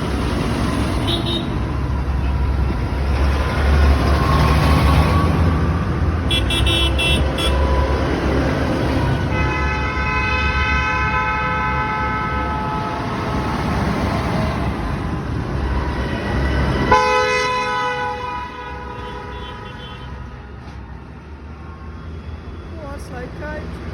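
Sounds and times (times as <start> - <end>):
tractor engines rumbling: 0.0 - 23.9
vehicle horns honking: 1.0 - 2.3, 6.2 - 8.2, 9.2 - 13.6, 15.6 - 20.6.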